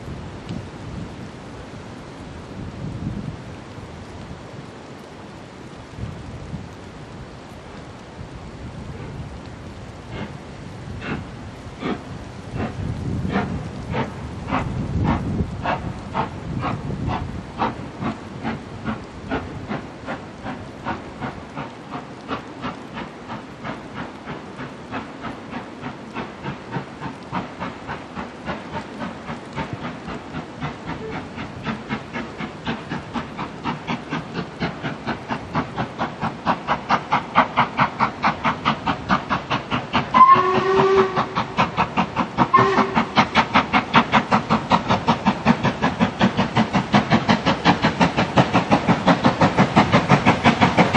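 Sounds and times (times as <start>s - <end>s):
steam locomotive exhaust beats: 0.0s - 50.9s
steam whistle blasts: 40.1s - 41.4s, 42.5s - 43.2s.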